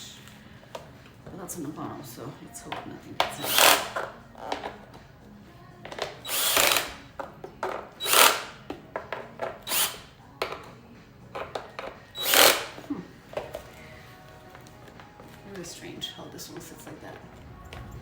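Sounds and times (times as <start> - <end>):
drill driver clicks: 3.2 - 4.8, 5.9 - 10.7, 11.4 - 12.8
drill driver driving screws: 3.2 - 4.8, 5.9 - 10.7, 11.4 - 12.9.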